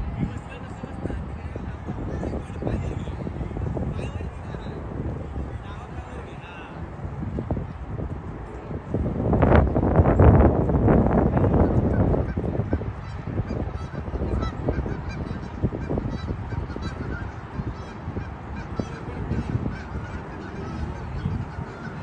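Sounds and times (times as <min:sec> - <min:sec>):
geese honking: 0:12.0 - 0:22.0.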